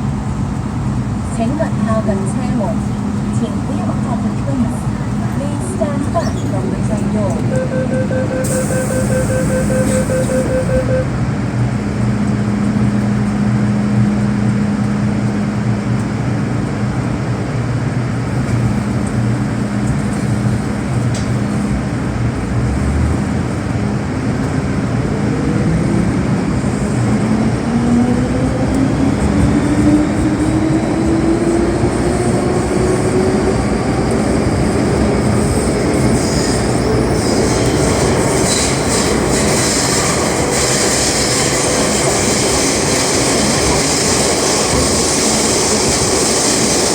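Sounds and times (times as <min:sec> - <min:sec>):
electric train motor whine: 0:07.6 - 0:11.1
rail hiss: 0:08.4 - 0:10.7.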